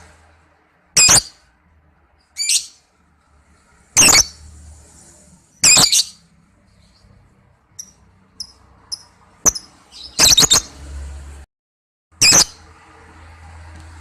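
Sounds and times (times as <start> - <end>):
lovebird chirping and screeching: 1.0 - 1.5, 2.3 - 2.9, 3.9 - 4.5, 5.5 - 7.1, 7.8 - 10.8, 12.2 - 12.6.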